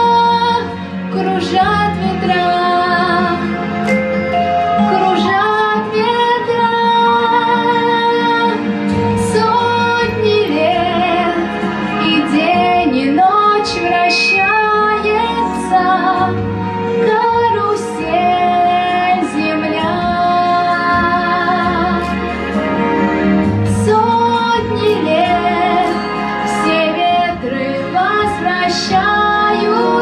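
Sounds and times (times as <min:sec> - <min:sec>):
instrumental accompaniment: 0:00.0 - 0:30.0
girl singing with vibrato: 0:04.9 - 0:08.6, 0:09.2 - 0:16.4, 0:23.7 - 0:30.0.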